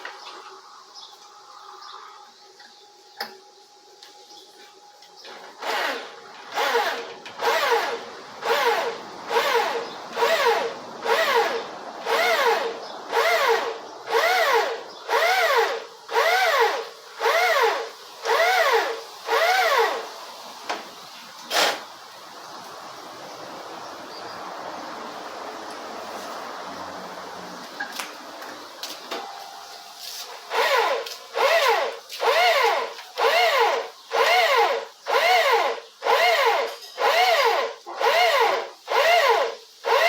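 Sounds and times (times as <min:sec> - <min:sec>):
electric drill pulsing: 0:05.6 - 0:20.1, 0:30.3 - 0:40.0.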